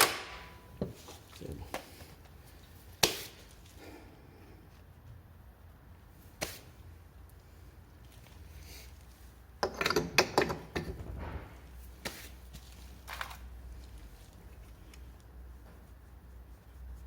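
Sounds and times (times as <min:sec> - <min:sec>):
tools clicking and knocking: 0:09.6 - 0:11.1.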